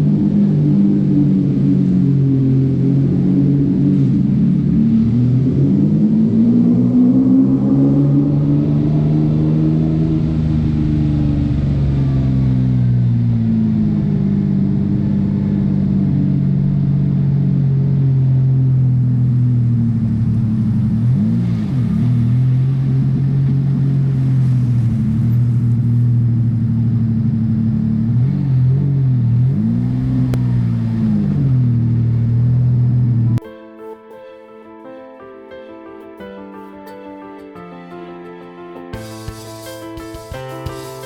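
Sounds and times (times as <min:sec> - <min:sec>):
car engine running: 0:00.0 - 0:33.4.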